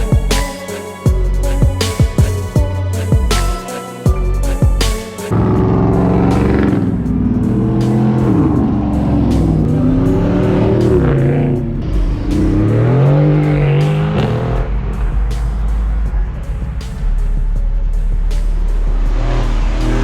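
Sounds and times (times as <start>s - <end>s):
music with steady beat: 0.0s - 20.0s
car engine revving: 4.2s - 20.0s.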